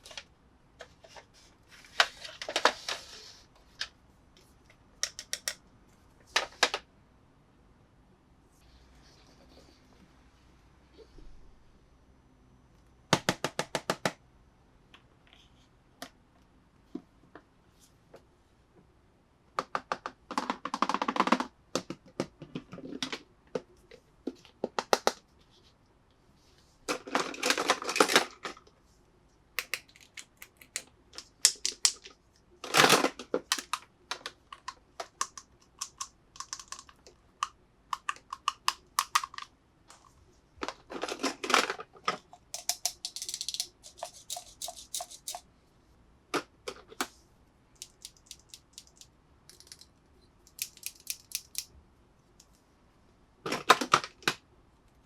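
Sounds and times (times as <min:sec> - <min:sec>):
clicks and taps on packaging: 0:13.2 - 0:14.2.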